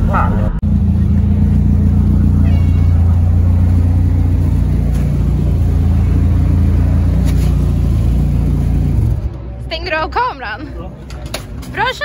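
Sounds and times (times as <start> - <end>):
race car engine idling: 0.0 - 9.6.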